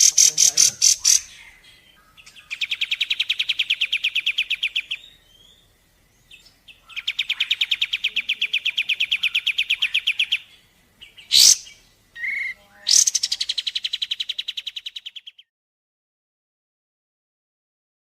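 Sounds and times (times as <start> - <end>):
bird trilling: 0.0 - 5.7, 6.7 - 10.5, 11.1 - 15.4.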